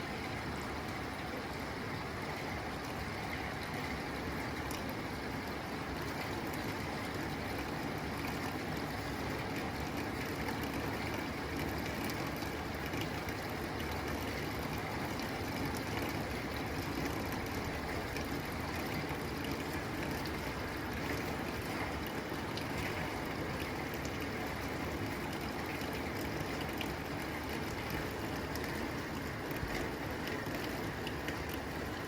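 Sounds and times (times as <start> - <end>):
rain on a tin roof: 0.0 - 32.0
drops ticking: 9.8 - 32.0.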